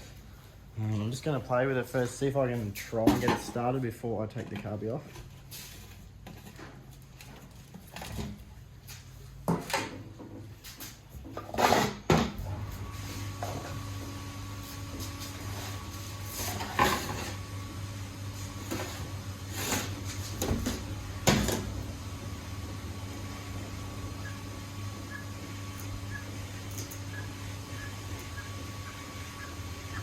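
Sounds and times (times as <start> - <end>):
steady low hum: 12.4 - 30.0.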